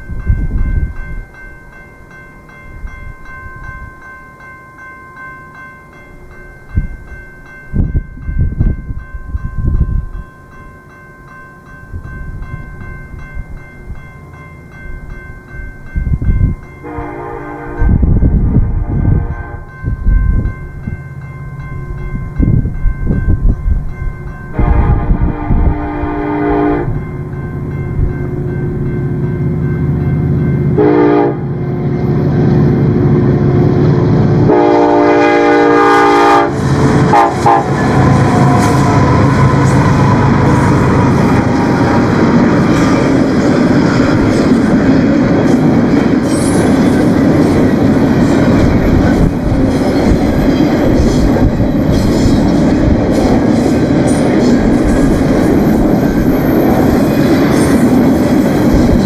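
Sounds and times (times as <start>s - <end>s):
locomotive air horn: 16.8s - 19.7s, 24.5s - 27.0s, 30.8s - 31.6s, 34.4s - 40.0s
train wheels clattering on rails: 36.5s - 59.0s.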